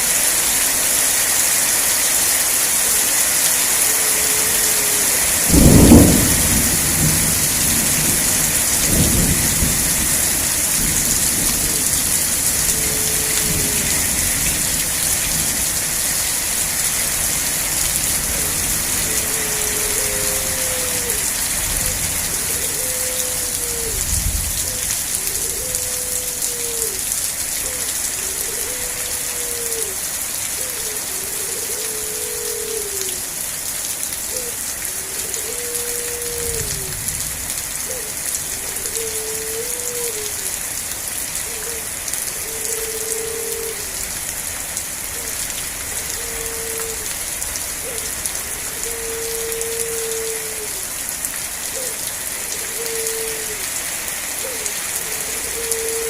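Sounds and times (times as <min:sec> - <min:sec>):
steady rain: 0:00.0 - 0:56.0
thunder rumbling: 0:05.5 - 0:15.6.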